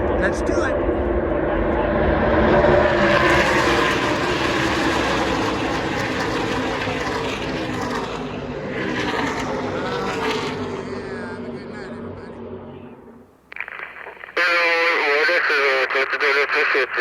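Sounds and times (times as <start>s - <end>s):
race truck engines passing: 0.0s - 13.4s.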